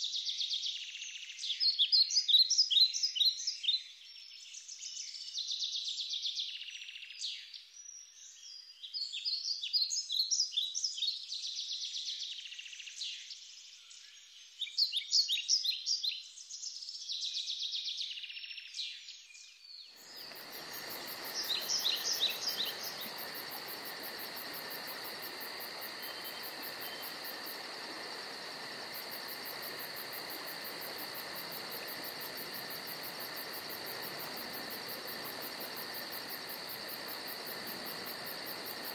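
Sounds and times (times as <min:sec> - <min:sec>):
small birds chirping and trilling: 0:00.2 - 0:38.9
background hiss: 0:16.0 - 0:38.9
high insect chirring: 0:20.0 - 0:38.9.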